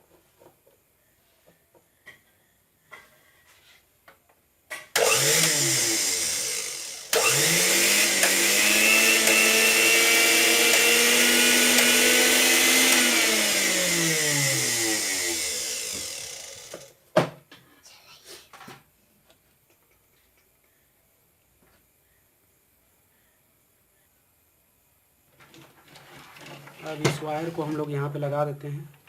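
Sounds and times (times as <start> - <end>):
mixer grinder motor running: 5.0 - 16.9.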